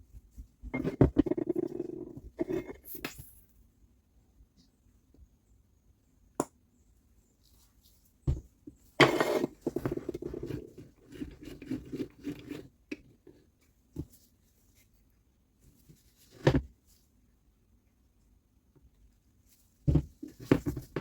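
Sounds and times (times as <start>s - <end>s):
rough scraping and rattling: 9.0s - 12.7s.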